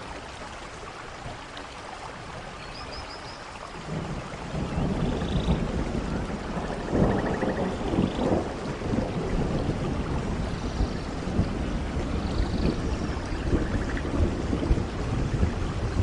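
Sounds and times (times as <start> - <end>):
rain falling in forest: 0.0 - 16.0.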